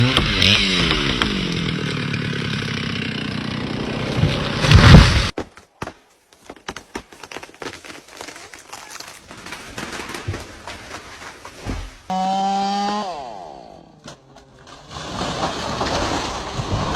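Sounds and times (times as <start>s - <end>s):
chainsaw engine running: 0.0s - 5.3s, 12.1s - 14.6s.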